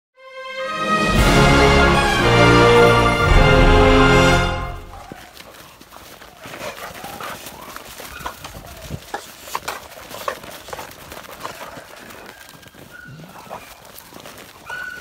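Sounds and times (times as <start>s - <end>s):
dogs play-fighting scuffling: 5.0s - 15.0s.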